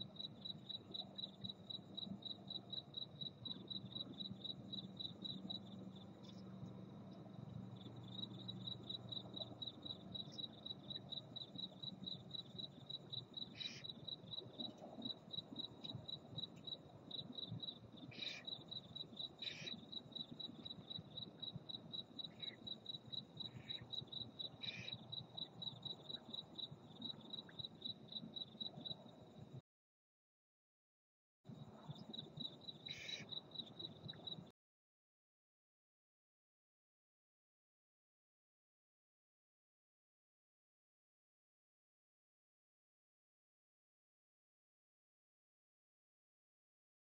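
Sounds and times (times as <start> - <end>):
cricket chirping: 0.0 - 29.6, 31.5 - 34.5.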